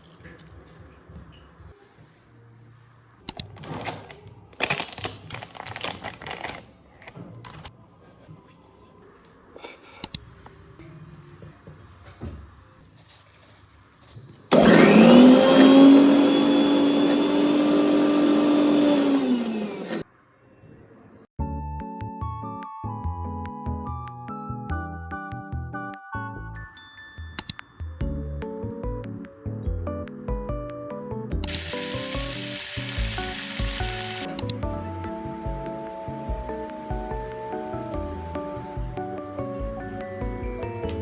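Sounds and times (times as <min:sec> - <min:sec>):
electric blender motor running: 0:14.5 - 0:20.0, 0:31.4 - 0:34.3.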